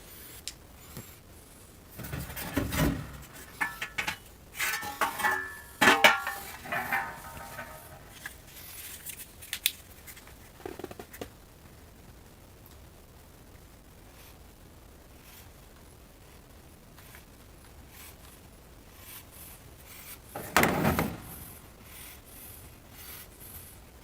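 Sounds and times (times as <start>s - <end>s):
hard objects clattering and knocking: 1.9s - 8.4s, 20.4s - 21.6s.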